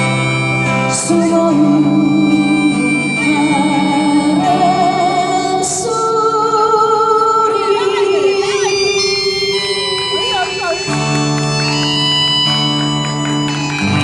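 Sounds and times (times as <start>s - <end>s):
acoustic guitar: 0.0s - 14.0s
group singing with vibrato: 1.0s - 10.2s.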